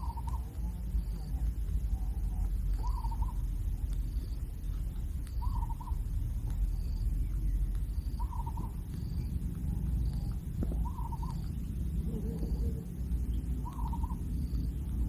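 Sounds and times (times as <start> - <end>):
bird quavering call: 0.0 - 0.5, 2.8 - 3.4, 5.4 - 6.0, 8.2 - 8.8, 10.8 - 13.0, 13.6 - 14.2
steady low rumble: 0.0 - 15.0.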